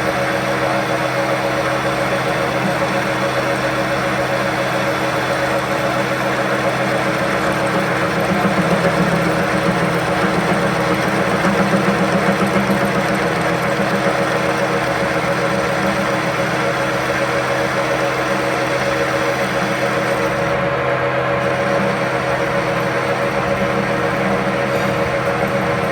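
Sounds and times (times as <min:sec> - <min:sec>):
machine running: 0:00.0 - 0:25.9.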